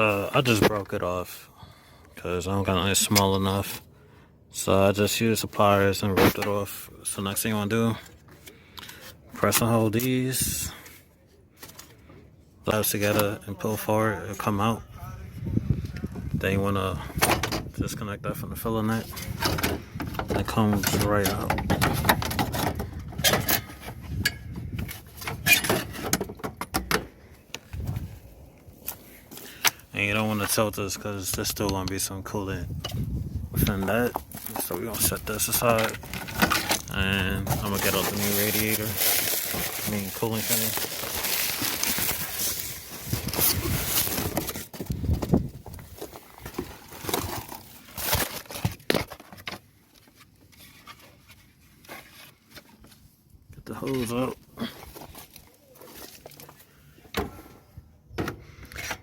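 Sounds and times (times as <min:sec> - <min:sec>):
plastic fan shroud knocking and scraping: 0:19.1 - 0:27.1.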